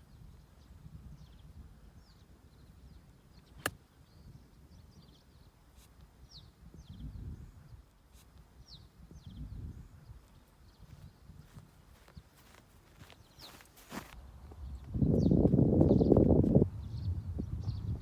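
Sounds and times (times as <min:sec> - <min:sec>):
small birds chirping: 0:00.0 - 0:18.0
low rumbles: 0:13.5 - 0:18.0.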